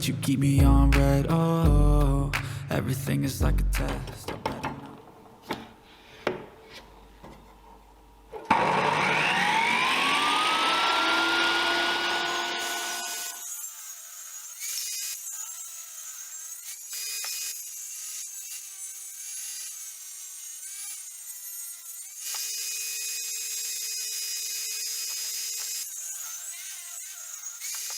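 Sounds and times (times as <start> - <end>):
power tool cutting wood: 8.4 - 27.9.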